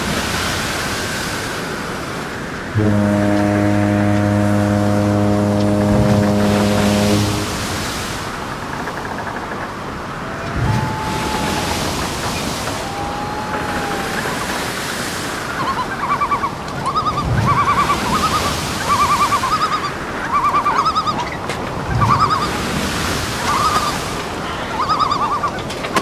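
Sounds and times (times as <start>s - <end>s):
steady rushing noise: 0.0s - 24.6s
bird calling quavering notes: 15.4s - 22.6s, 23.4s - 25.7s.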